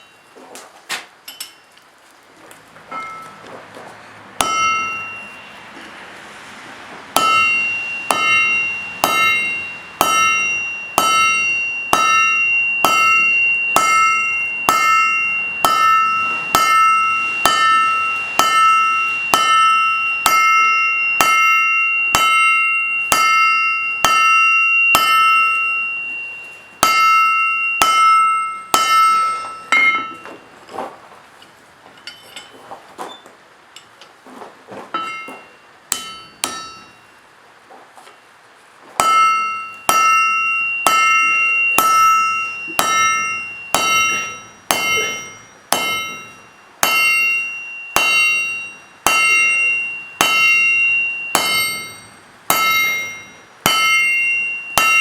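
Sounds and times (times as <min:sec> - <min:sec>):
hammer striking steel on anvil: 0:02.9 - 0:03.4, 0:04.4 - 0:05.9, 0:07.1 - 0:30.5, 0:35.0 - 0:37.2, 0:39.0 - 0:55.0.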